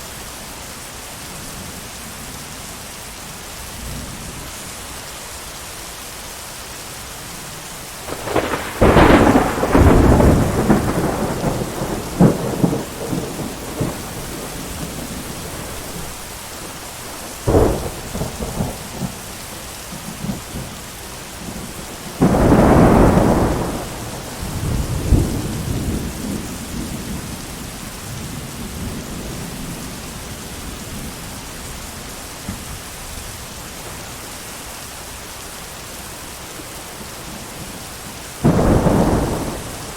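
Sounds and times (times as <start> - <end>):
heavy rain: 0.0 - 39.9
thunder cracking and rumbling: 8.1 - 19.4, 21.4 - 31.2, 38.4 - 39.9.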